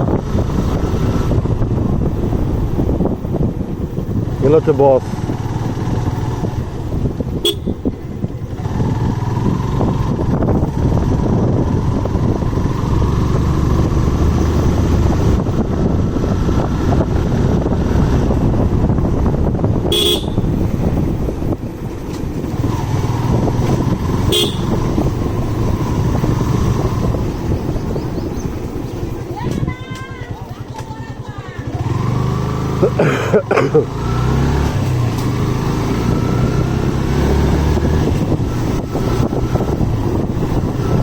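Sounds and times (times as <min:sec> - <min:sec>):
motorcycle engine: 0:00.0 - 0:41.0
wind and road noise: 0:00.0 - 0:41.0
short horn toots: 0:07.4 - 0:07.9, 0:19.9 - 0:20.5, 0:24.2 - 0:24.8.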